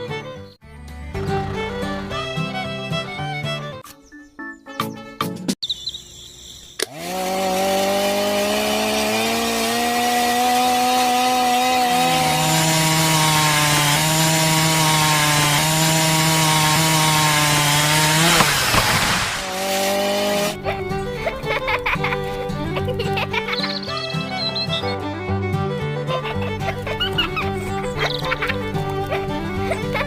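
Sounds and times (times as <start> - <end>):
small motor whining: 5.9 - 23.1.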